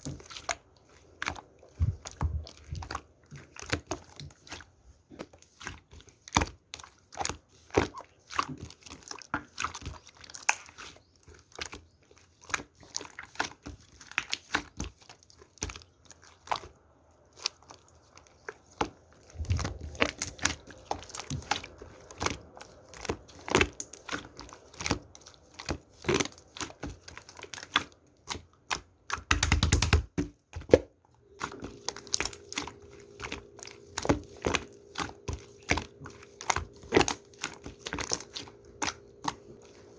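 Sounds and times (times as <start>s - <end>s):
slime clicking and popping: 25.6s - 30.8s.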